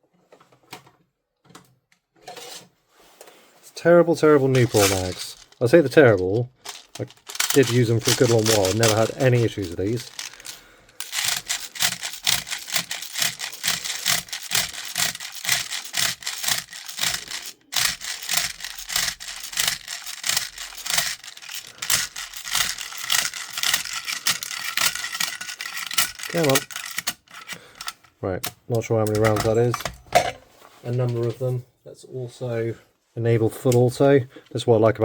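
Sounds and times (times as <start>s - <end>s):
bbs scraping into magazine: 4.2s - 30.0s.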